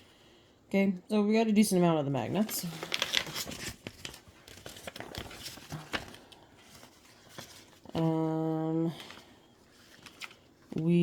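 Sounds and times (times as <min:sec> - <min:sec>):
paper crinkling and clicks: 0:02.4 - 0:08.2, 0:09.0 - 0:10.9.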